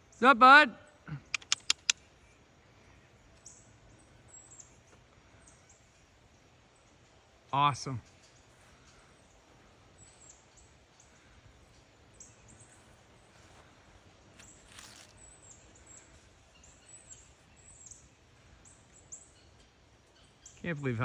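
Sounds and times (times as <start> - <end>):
faint high bird chirps: 0.9 - 6.2, 14.4 - 21.0
rustling noise: 13.3 - 15.2.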